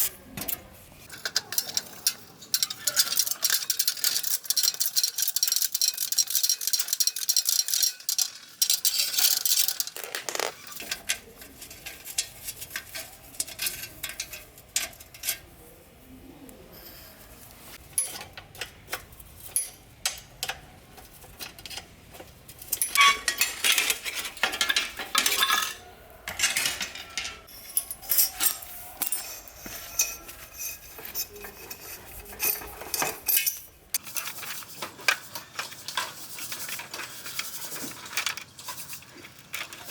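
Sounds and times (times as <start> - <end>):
metal tools clinking and knocking: 0.4 - 15.4, 17.9 - 36.8
scraping or rubbing: 8.9 - 16.0, 26.4 - 39.9.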